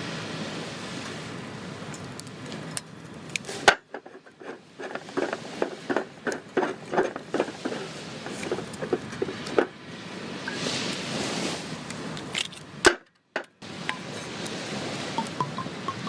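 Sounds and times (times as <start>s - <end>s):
hard objects knocking and tapping: 3.7s - 9.7s.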